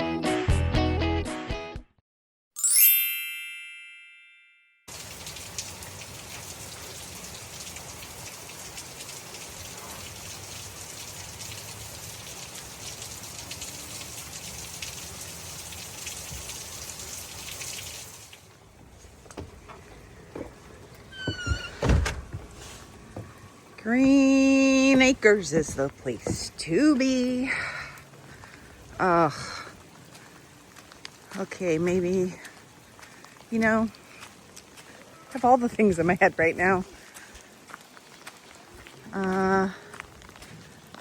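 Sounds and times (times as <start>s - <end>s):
bell-like chime: 2.6s - 4.9s
steady rain falling: 4.9s - 21.4s, 22.5s - 41.0s.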